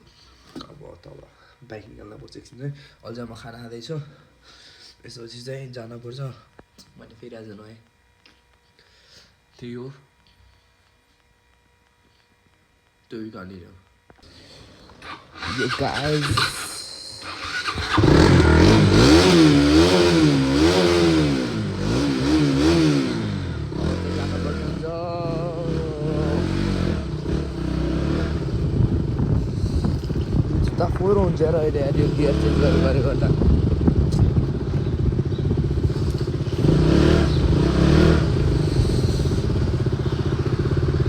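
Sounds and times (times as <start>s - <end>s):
motorcycle engine revving: 14.6s - 41.0s.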